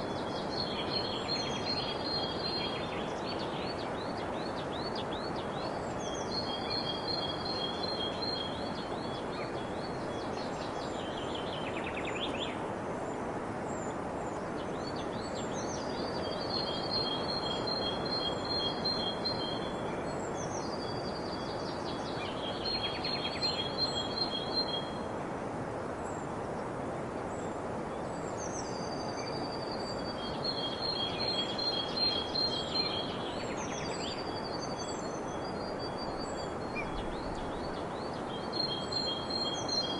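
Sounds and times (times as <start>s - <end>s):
songbird singing with trill: 0.0s - 12.6s, 13.8s - 25.1s, 27.4s - 39.9s.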